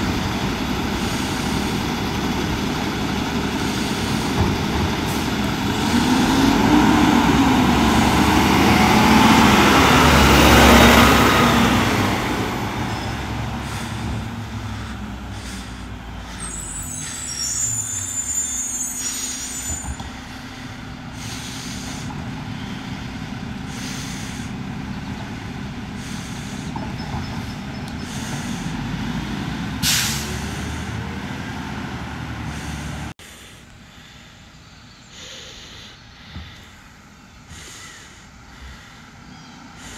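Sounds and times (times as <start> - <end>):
truck engine revving: 0.0 - 33.2
air brake hiss: 12.9 - 20.3, 29.8 - 31.0
high squeal: 16.3 - 20.1.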